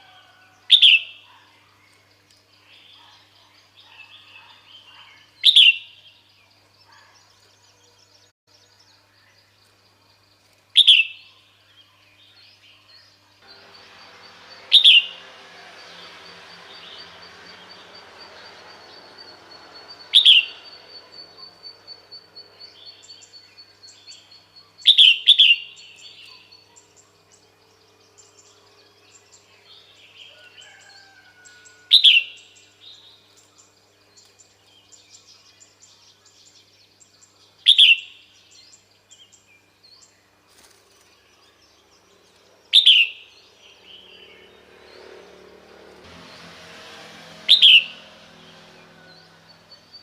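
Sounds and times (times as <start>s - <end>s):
faint bird chirps: 15.9s - 44.5s.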